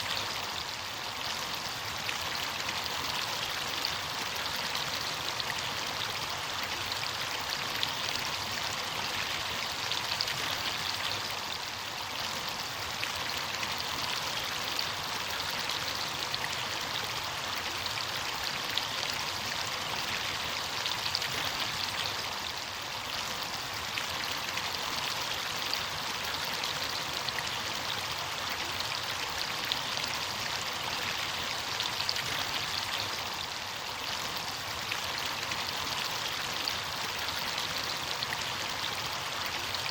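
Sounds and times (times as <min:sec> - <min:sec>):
stream water rushing and splashing: 0:00.0 - 0:39.9.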